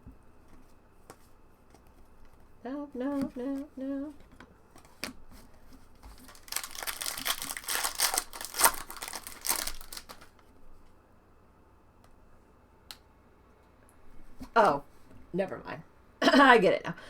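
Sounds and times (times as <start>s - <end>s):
wrapper tearing and crinkling: 6.1s - 10.4s.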